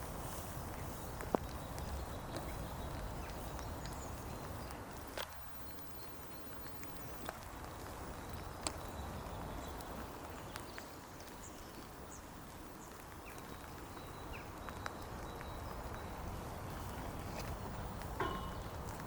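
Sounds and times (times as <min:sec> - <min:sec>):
steady hiss: 0:00.0 - 0:19.0
light clicks and knocks: 0:17.2 - 0:19.0.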